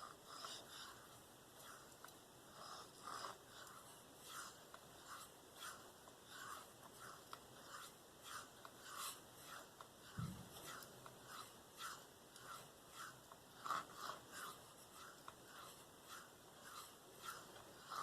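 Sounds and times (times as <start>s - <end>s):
dull thump: 10.2s - 10.5s.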